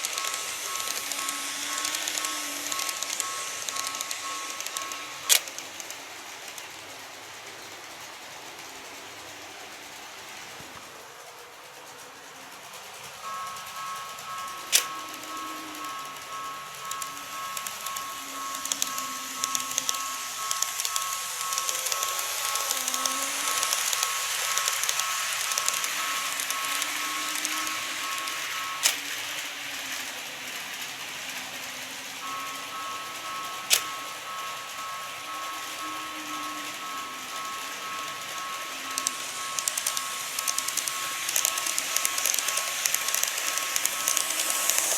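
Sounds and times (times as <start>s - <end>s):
sharp clicks: 0.0s - 6.7s, 13.3s - 29.1s, 32.2s - 44.9s
model train wheels clattering: 0.0s - 44.9s.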